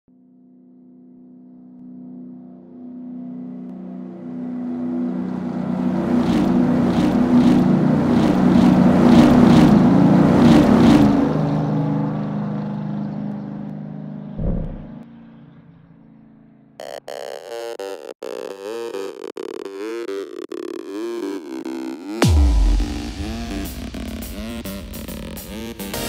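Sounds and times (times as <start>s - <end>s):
car engine rush: 4.0s - 16.7s
low thump: 14.4s - 15.0s.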